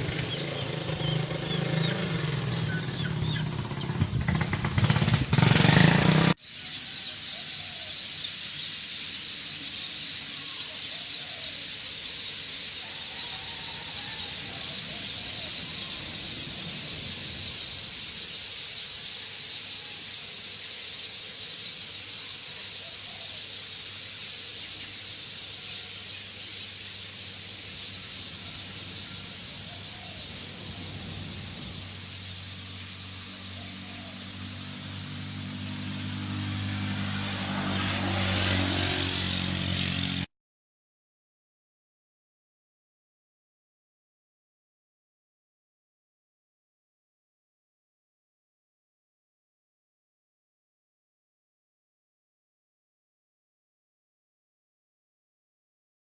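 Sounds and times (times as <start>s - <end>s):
approaching engine: 0.0s - 40.3s
high-pitched outdoor hiss: 4.9s - 40.2s.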